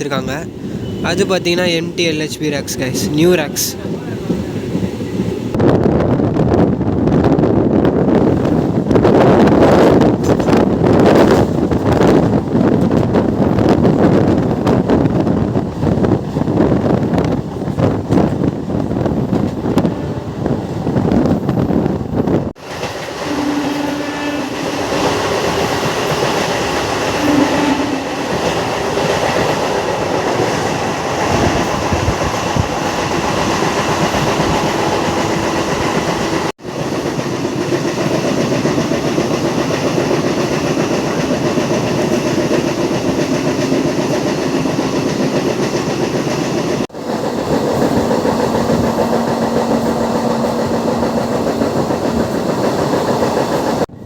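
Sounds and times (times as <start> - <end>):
train wheels rumbling on rail: 0.0 - 54.0
clickety-clack over rail joints: 8.2 - 53.9.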